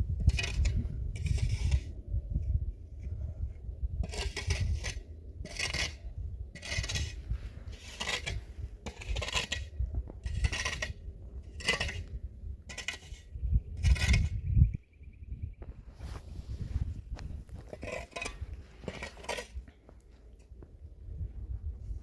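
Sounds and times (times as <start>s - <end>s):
hand tool digging into earth: 0.2s - 1.9s, 4.0s - 14.4s, 16.1s - 19.8s.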